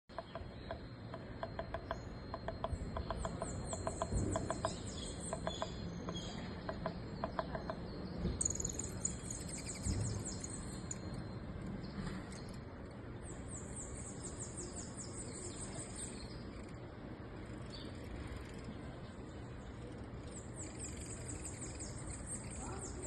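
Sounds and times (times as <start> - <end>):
trilled bird chirps: 0.1 - 11.6, 20.2 - 23.0
low background rumble: 0.1 - 23.0.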